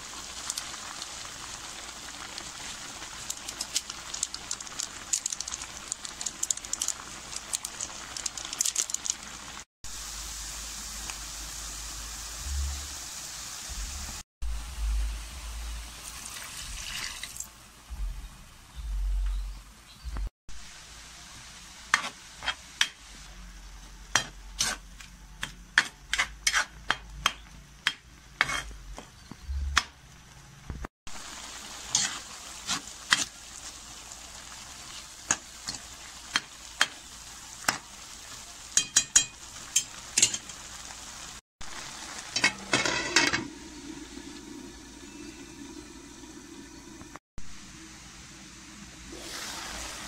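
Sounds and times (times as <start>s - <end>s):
food sizzling in a pan: 0.0s - 14.2s, 14.8s - 17.6s, 20.5s - 27.0s, 31.1s - 50.0s
lid clattering on pan: 42.4s - 43.5s.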